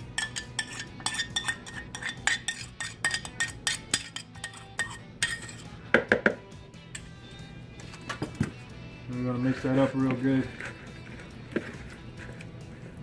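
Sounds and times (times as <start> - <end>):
utensil clinking against a pan: 0.0 - 6.4.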